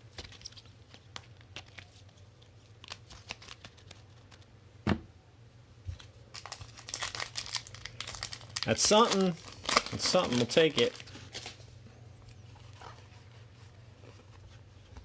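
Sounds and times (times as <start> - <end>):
trading cards flicking and rustling: 0.0 - 4.5, 5.9 - 11.7.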